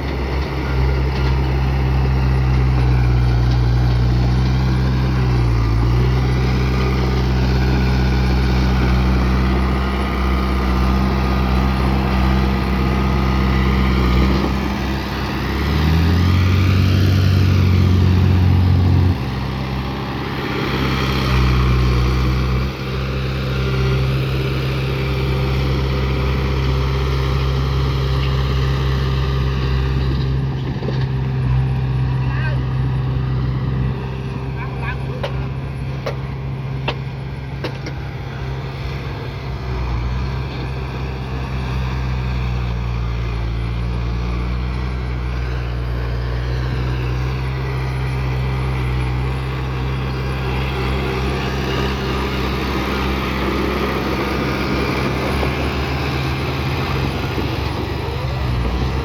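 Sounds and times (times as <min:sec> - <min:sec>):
bulldozer diesel engine: 0:00.0 - 0:59.0.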